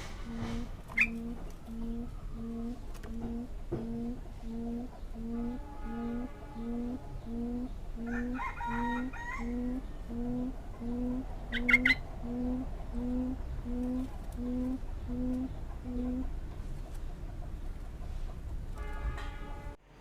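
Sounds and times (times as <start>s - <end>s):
quail hooting call: 0.0s - 16.3s
high-pitched bird chirps: 11.5s - 12.0s.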